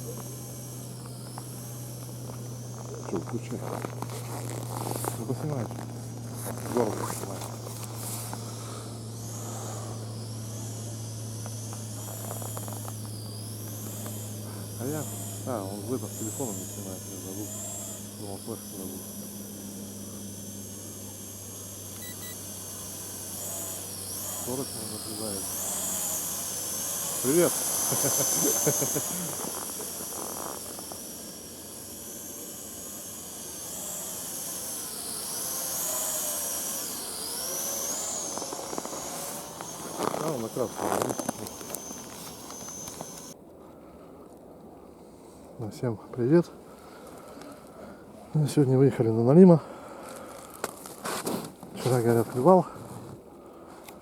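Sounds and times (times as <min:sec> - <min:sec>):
idling engine hum: 0:00.0 - 0:43.4
thin wavering whine: 0:00.0 - 0:54.0.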